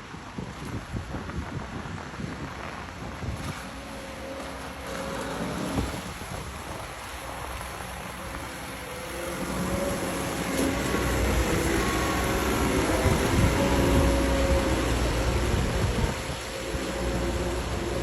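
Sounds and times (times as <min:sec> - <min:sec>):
excavator engine running: 0:03.7 - 0:18.0.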